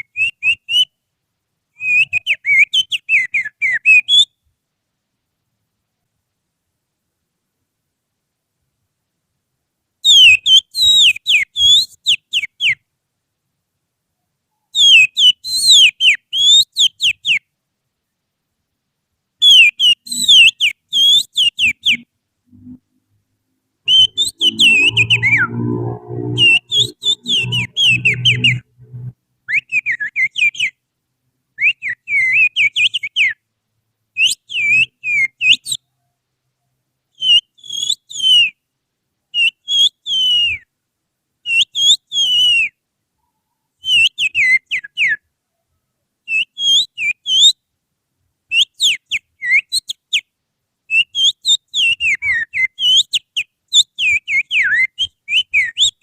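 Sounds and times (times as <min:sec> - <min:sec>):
finger whistling birdsong: 0:00.0 - 0:00.9, 0:01.8 - 0:04.4, 0:10.1 - 0:12.8, 0:14.6 - 0:17.4, 0:19.4 - 0:22.1, 0:23.9 - 0:28.6, 0:29.5 - 0:30.8, 0:31.6 - 0:33.4, 0:34.2 - 0:35.8, 0:37.2 - 0:38.6, 0:39.4 - 0:40.7, 0:41.5 - 0:42.8, 0:43.8 - 0:45.2, 0:46.3 - 0:47.6, 0:48.5 - 0:50.2, 0:50.9 - 0:56.0
low hum: 0:24.4 - 0:29.2.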